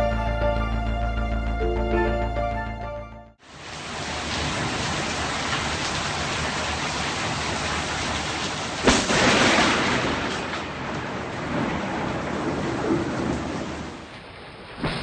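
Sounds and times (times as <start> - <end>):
heavy rain falling: 3.4 - 15.0
thunderclap with rumbling: 8.8 - 14.1.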